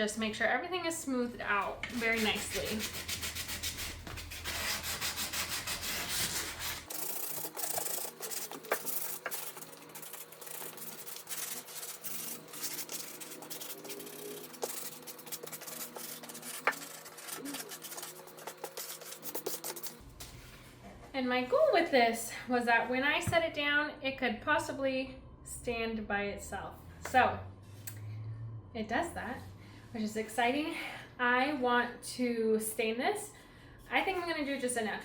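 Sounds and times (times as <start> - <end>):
wood sanding by hand: 1.9 - 19.9.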